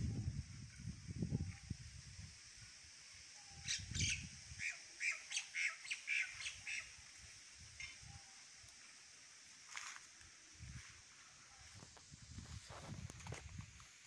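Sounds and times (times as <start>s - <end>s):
bird chirping: 3.4s - 6.9s.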